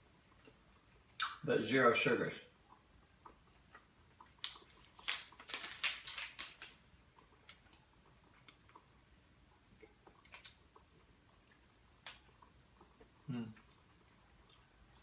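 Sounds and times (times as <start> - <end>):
plastic packaging crinkling: 4.4 - 6.8.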